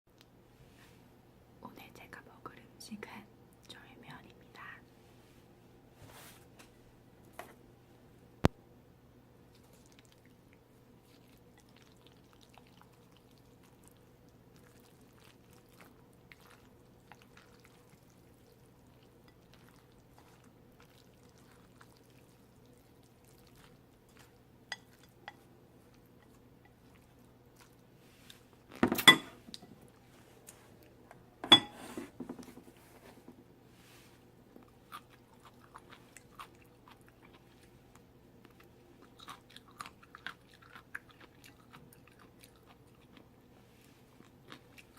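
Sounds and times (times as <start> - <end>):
low steady hum: 0.1 - 44.9
tableware clicks: 28.8 - 29.4, 31.4 - 32.0.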